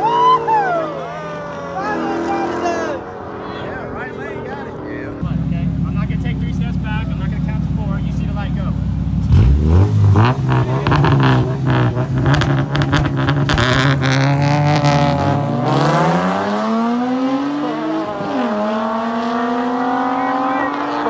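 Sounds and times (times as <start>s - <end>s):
engines accelerating hard: 0.0s - 21.0s
race car engines revving high: 0.0s - 21.0s
engine crackling: 1.2s - 17.2s.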